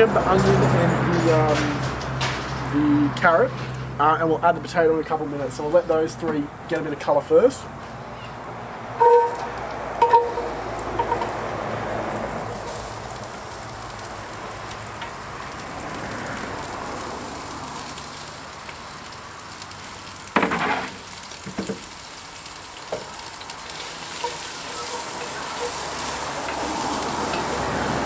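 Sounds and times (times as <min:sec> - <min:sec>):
vegetables sizzling in hot oil: 0:10.0 - 0:28.0.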